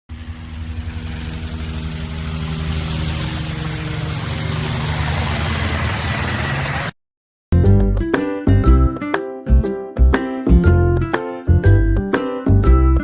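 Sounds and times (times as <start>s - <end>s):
small motor whirring: 0.1s - 6.9s.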